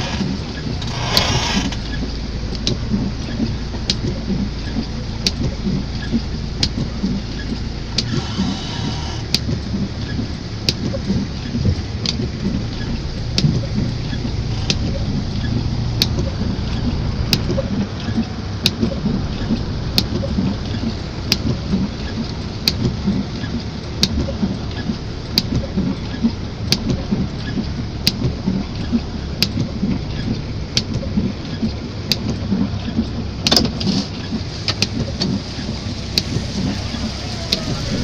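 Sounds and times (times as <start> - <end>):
heavy rain falling: 0.0 - 38.0
sharp clicks: 11.6 - 21.6, 22.6 - 34.0.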